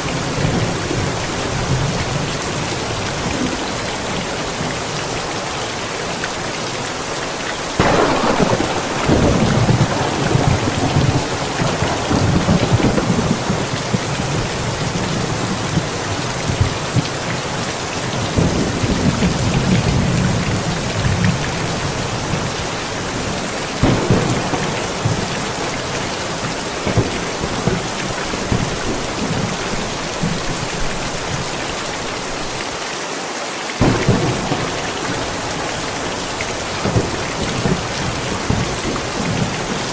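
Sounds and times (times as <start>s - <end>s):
steady rain: 0.0s - 39.9s
thunder rumbling: 7.6s - 32.6s, 33.8s - 39.9s.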